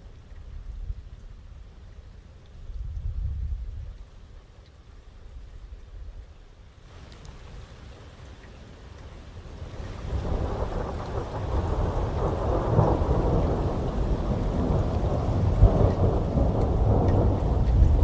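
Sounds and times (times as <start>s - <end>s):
heavy rain: 6.7s - 18.0s
rolling thunder: 9.9s - 18.0s.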